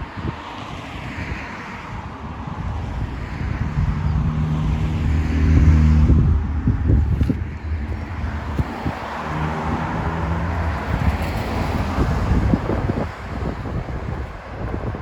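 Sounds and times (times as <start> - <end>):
wind buffeting microphone: 0.0 - 15.0
vehicle engine passing by: 3.4 - 14.2.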